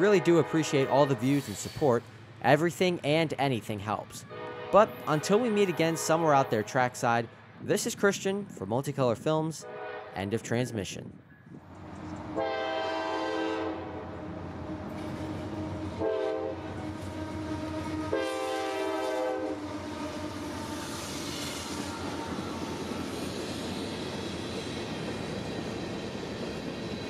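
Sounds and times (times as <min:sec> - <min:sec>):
locomotive air horn blasts: 0:00.0 - 0:01.7, 0:04.2 - 0:06.9, 0:09.6 - 0:10.2, 0:12.3 - 0:14.1, 0:15.7 - 0:22.4.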